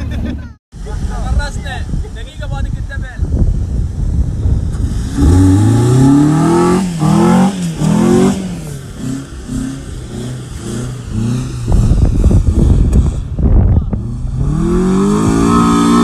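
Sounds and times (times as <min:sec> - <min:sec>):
car engine revving: 0:03.6 - 0:16.0.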